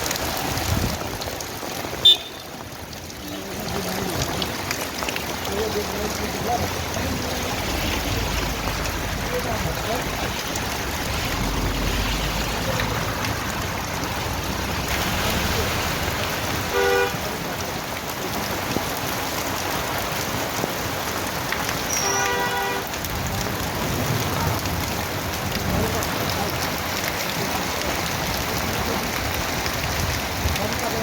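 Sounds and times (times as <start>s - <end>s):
steady rain: 0.0s - 31.0s
vehicle horn honking: 2.0s - 2.5s, 16.7s - 17.2s, 21.9s - 22.9s.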